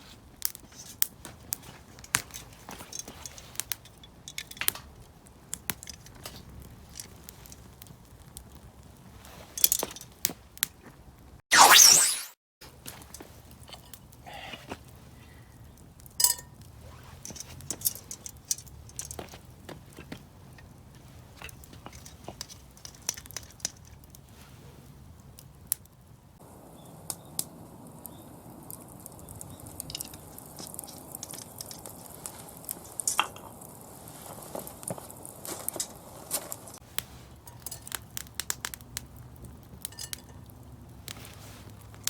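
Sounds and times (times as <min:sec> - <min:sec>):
wood fire crackling and popping: 0:00.0 - 0:11.2, 0:12.6 - 0:42.0
light metal clinks: 0:16.2 - 0:19.4, 0:39.8 - 0:40.6.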